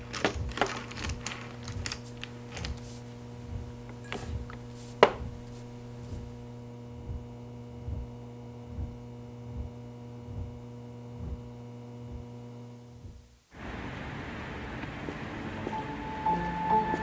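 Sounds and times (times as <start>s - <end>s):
electrical hum: 0.0s - 17.0s
soft low thuds: 1.8s - 17.0s
noisier sound: 13.0s - 17.0s.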